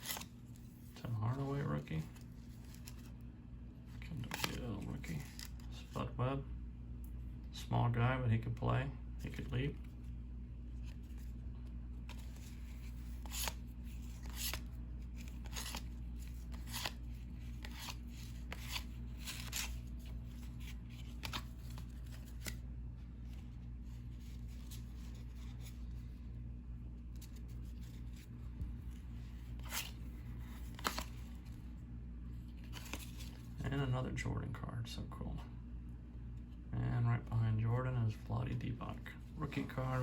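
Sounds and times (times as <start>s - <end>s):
cards sliding and flicking: 0.0s - 3.2s, 4.1s - 5.7s, 10.8s - 22.6s, 27.1s - 31.6s, 32.5s - 33.5s
steady low hum: 0.0s - 40.0s.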